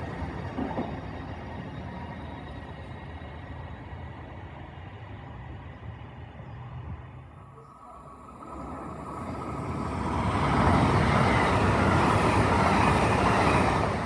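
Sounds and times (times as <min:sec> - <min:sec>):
train rushing past: 0:07.9 - 0:14.0.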